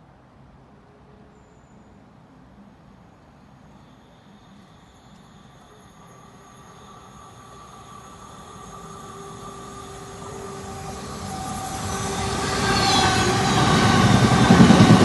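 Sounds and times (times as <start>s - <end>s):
train wheels rumbling on rail: 4.0s - 15.0s
whining tones: 4.3s - 15.0s.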